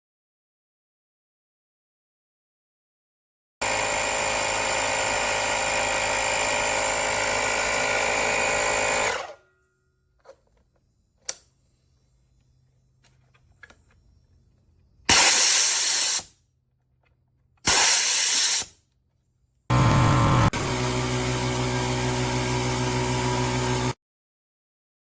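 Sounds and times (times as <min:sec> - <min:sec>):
air compressor whine: 0:03.6 - 0:09.4, 0:19.7 - 0:24.0.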